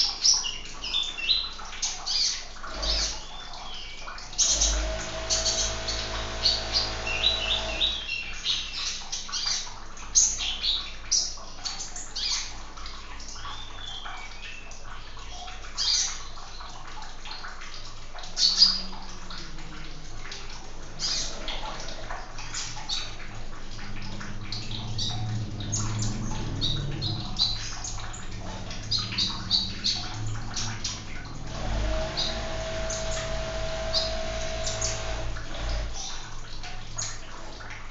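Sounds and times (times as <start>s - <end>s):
running water: 0.0s - 37.9s
low hum: 4.5s - 8.2s, 18.4s - 37.7s.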